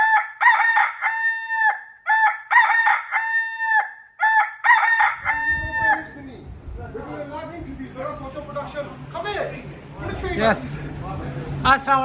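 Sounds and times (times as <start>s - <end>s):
rooster crowing: 0.0s - 6.2s.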